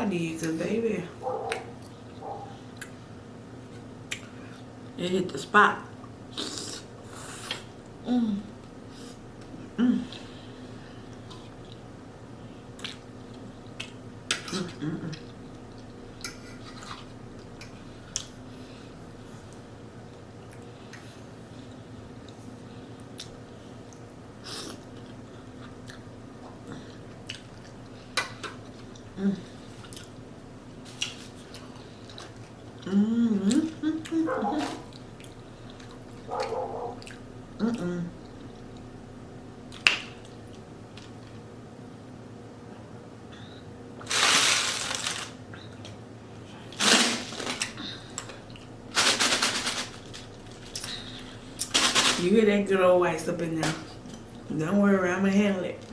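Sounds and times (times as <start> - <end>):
chewing food: 1.2 - 3.0, 12.6 - 18.4, 22.2 - 30.2, 30.9 - 32.9, 33.5 - 37.4
person humming: 8.0 - 8.5, 32.8 - 34.4, 37.6 - 38.2
ice cubes rattling in a cup: 44.1 - 45.4, 49.0 - 50.3.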